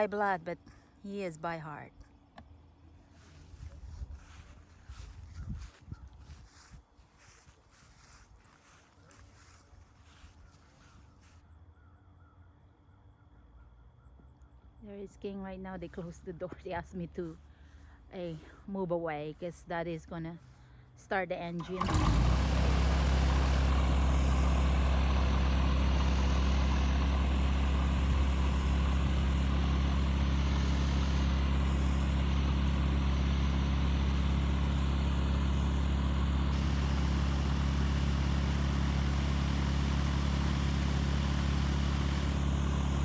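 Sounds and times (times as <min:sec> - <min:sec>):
airplane piston engine idling: 0:21.5 - 0:43.0.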